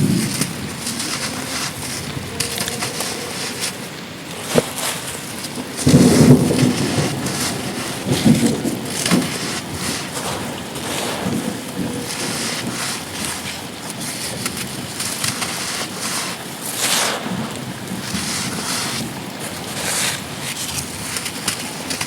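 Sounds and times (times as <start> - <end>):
heavy wind gusting on microphone: 0.0 - 21.9
rain falling: 0.0 - 22.0.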